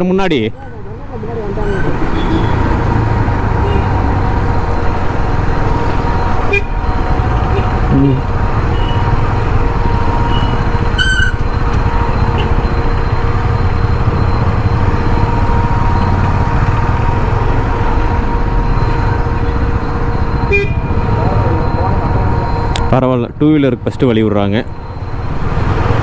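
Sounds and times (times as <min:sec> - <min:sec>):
traffic engines rumbling: 0:00.0 - 0:26.0
car horn toots: 0:01.6 - 0:02.8, 0:03.6 - 0:04.1, 0:06.4 - 0:09.0, 0:10.3 - 0:11.5, 0:20.4 - 0:21.0.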